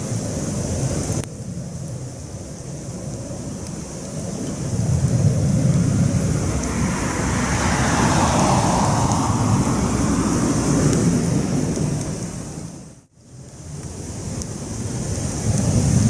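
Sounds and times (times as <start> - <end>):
campfire rumbling: 0.0 - 16.0
fire crackles: 0.0 - 16.0
rushing sound: 5.2 - 12.8.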